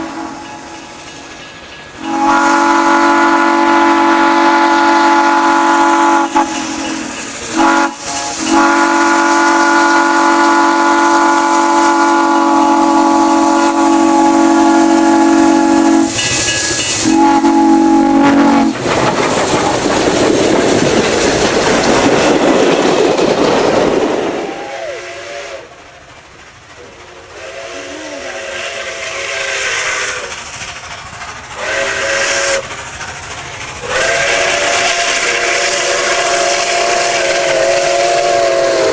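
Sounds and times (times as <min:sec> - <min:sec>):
steam locomotive whistle: 0:00.0 - 0:00.9, 0:02.0 - 0:18.8, 0:24.1 - 0:25.8, 0:27.3 - 0:30.4, 0:31.6 - 0:32.8, 0:33.8 - 0:38.9
train rushing past: 0:00.0 - 0:38.9.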